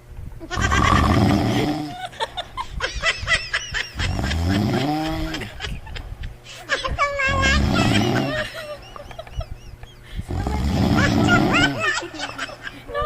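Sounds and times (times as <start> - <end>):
high-pitched laughter and squeals: 0.4 - 10.2, 10.8 - 13.0
loud rough snore: 0.6 - 1.9, 4.1 - 5.4, 10.3 - 11.6.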